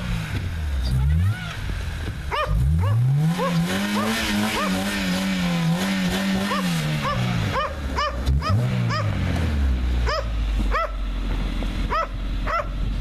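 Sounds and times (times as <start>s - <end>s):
car engine revving: 0.0s - 13.0s
dog yelping: 2.3s - 4.9s, 6.4s - 9.2s, 10.0s - 11.0s, 11.9s - 12.7s.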